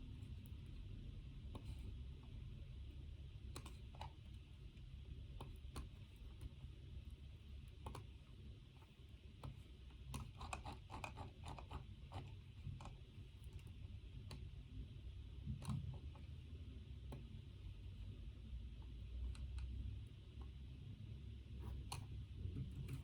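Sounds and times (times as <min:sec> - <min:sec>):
low room hum: 0:00.0 - 0:23.0
small clicks and taps: 0:01.4 - 0:02.4, 0:03.4 - 0:14.6, 0:15.3 - 0:16.4, 0:17.0 - 0:17.6, 0:18.7 - 0:20.6, 0:21.6 - 0:23.0.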